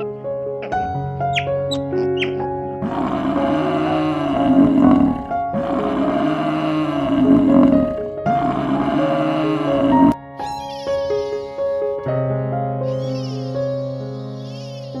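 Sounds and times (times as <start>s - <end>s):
light background music: 0.0s - 12.2s
big cat roaring: 2.8s - 10.2s.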